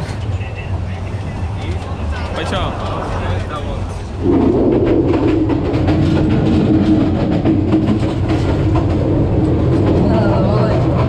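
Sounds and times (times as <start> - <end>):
passenger train rumbling: 0.0 - 11.0
wheels clicking over rails: 4.2 - 11.0.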